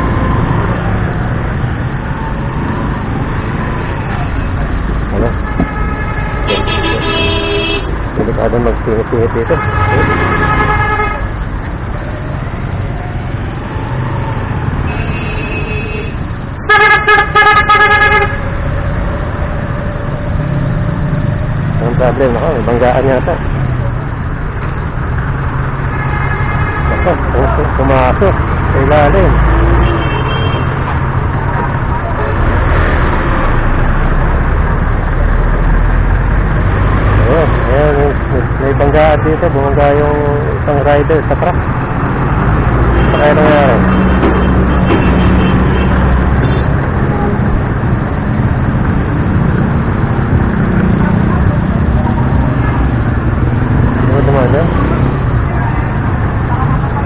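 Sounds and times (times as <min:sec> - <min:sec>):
engine and road rumble: 0:00.0 - 0:57.0
vehicle horns honking: 0:05.2 - 0:08.0, 0:09.4 - 0:11.3, 0:14.9 - 0:18.4, 0:25.9 - 0:27.6, 0:29.7 - 0:30.8, 0:42.8 - 0:47.5.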